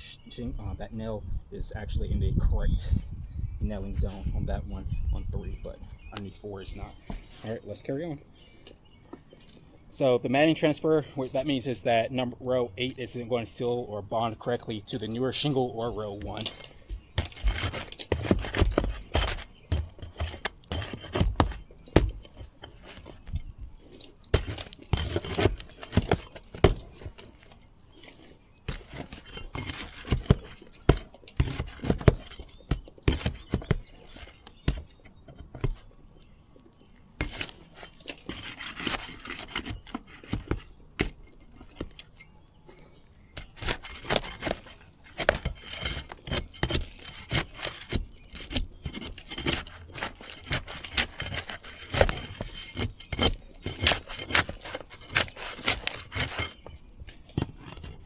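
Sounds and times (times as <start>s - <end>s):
roof shingles being pried loose: 15.6s - 36.0s, 37.2s - 58.0s.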